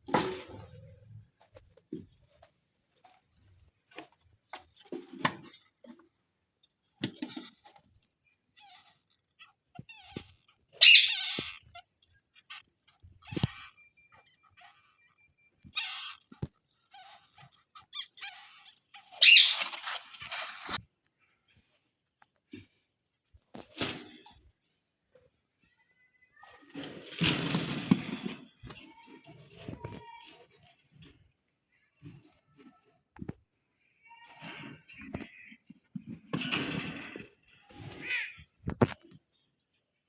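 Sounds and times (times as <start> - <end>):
parrot chirps: 10.8 - 11.3, 17.8 - 20.8
parrot squawks: 10.8 - 11.5, 17.9 - 20.8.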